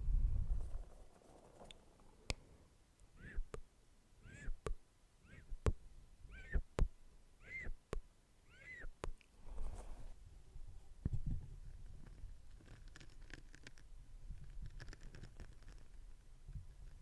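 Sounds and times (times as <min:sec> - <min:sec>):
short squeaky mouth chirps: 0:03.2 - 0:03.6, 0:04.2 - 0:05.6, 0:06.3 - 0:06.7, 0:07.4 - 0:07.8, 0:08.5 - 0:09.0.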